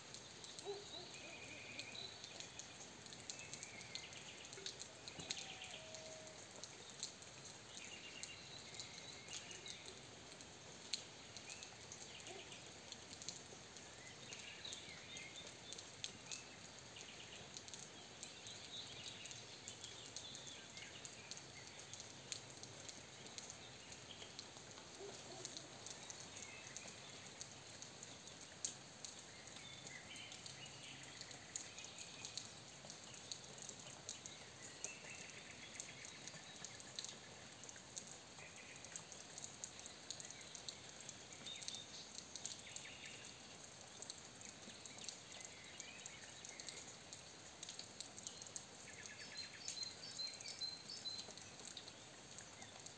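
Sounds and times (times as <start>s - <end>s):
faint rain pattering: 0.0s - 52.9s
small birds chirping: 0.0s - 52.9s.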